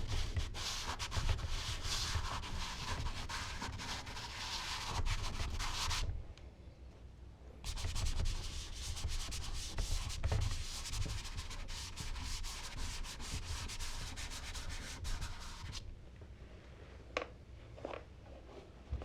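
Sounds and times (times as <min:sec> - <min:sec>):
charcoal rubbing on paper: 0:00.0 - 0:06.1, 0:07.7 - 0:15.8.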